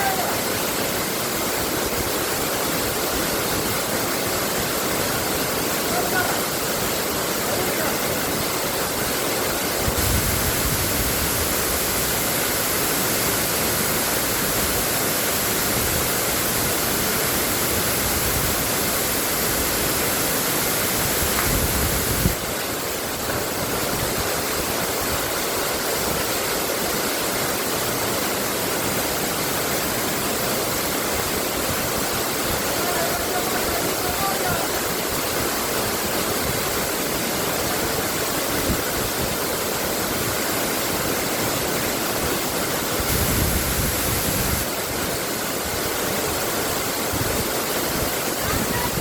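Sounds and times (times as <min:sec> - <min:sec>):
fast-flowing water rushing: 0:00.0 - 0:49.0.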